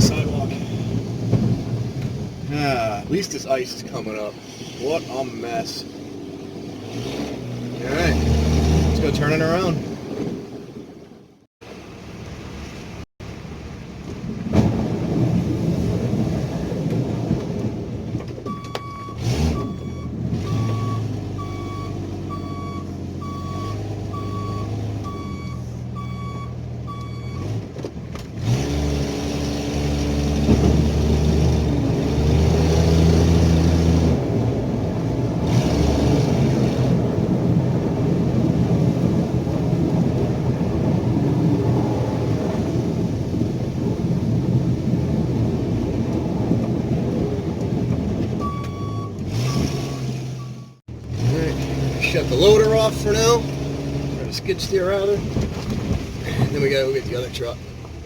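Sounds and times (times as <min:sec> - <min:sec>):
backup alarm beeping: 0:18.5 - 0:27.4, 0:48.4 - 0:50.8.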